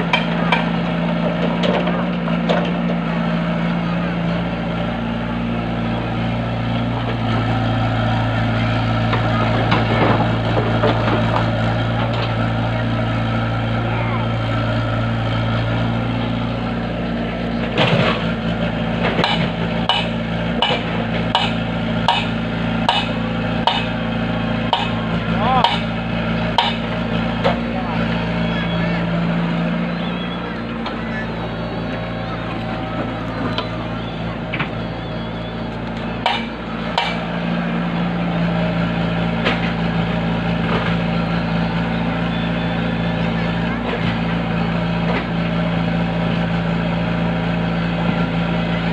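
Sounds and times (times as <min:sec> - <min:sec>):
engine hum: 0:00.0 - 0:48.9
sharp knocks: 0:19.1 - 0:23.9, 0:26.6 - 0:27.6, 0:36.2 - 0:37.2.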